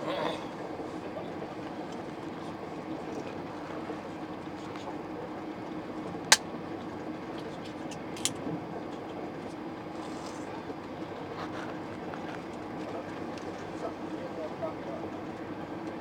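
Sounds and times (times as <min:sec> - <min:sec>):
sharp click: 0:07.9 - 0:08.4.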